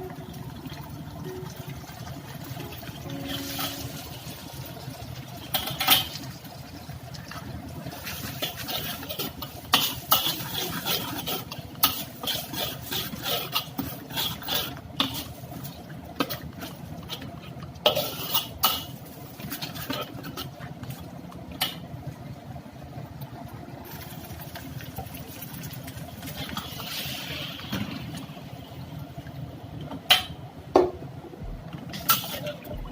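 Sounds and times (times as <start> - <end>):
steady low hum: 0.0 - 32.9
metal utensil scraping in pot: 8.0 - 15.4, 17.0 - 20.5.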